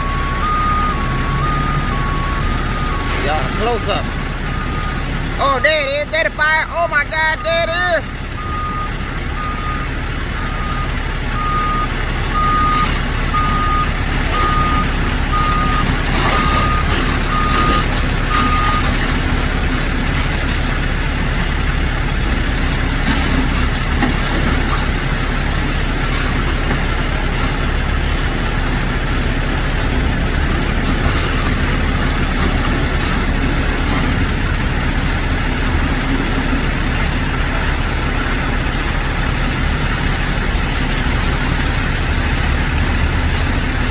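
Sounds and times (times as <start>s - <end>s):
back-up alarm beeping: 0.0s - 6.4s, 7.1s - 19.0s
diesel truck engine running: 0.0s - 43.9s.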